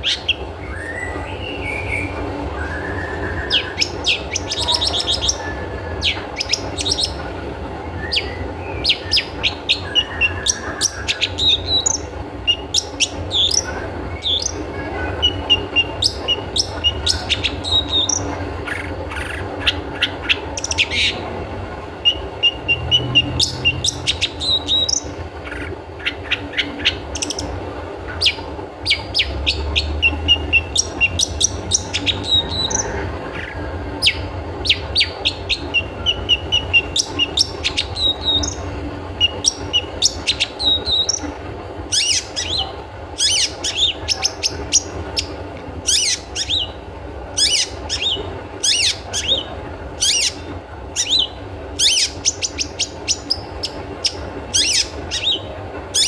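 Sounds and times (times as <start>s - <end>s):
shrike calling: 0.0s - 56.0s
steady background noise: 0.0s - 56.0s.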